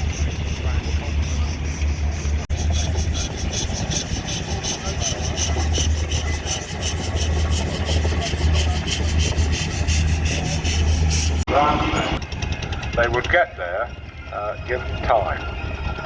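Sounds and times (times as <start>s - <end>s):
machine rasping beat: 0.0s - 11.5s
low hum: 0.0s - 16.0s.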